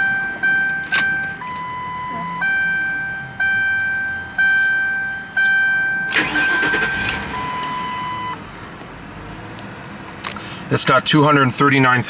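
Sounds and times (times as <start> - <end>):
car engine cranking and starting: 0.0 - 2.8, 3.4 - 10.8
car warning chime: 0.0 - 8.4
steady warning tone: 0.0 - 8.4.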